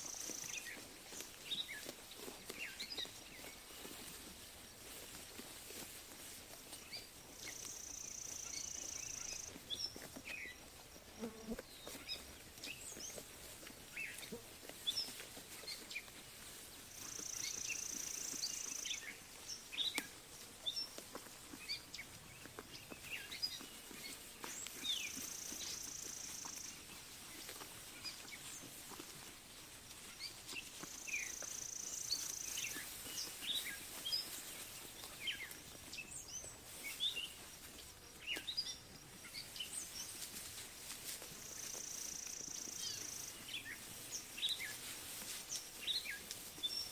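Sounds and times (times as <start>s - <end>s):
birds chirping: 6.8s - 10.6s, 21.6s - 27.0s, 30.9s - 40.2s.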